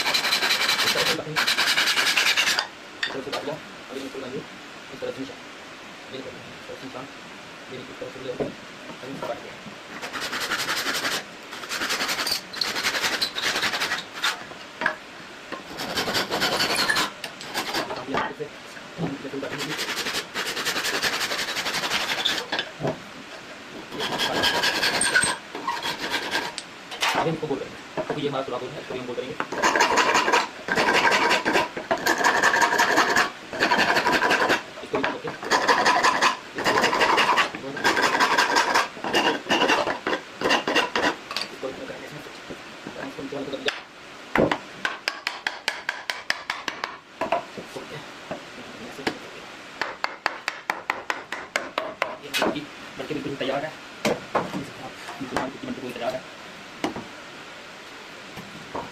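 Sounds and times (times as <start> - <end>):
hand saw cutting wood: 0.0 - 2.7, 10.0 - 14.4, 15.7 - 18.0, 19.4 - 22.6, 23.9 - 27.2, 29.5 - 41.2.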